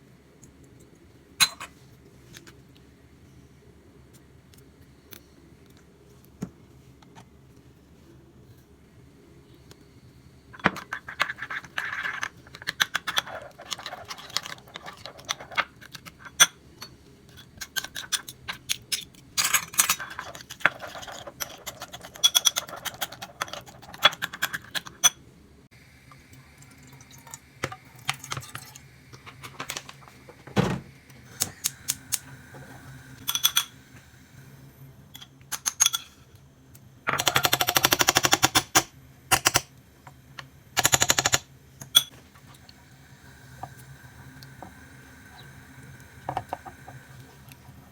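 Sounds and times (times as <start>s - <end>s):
utensils and dishes clicking: 10.6s - 25.2s, 33.2s - 33.8s, 35.1s - 36.2s, 37.1s - 39.7s.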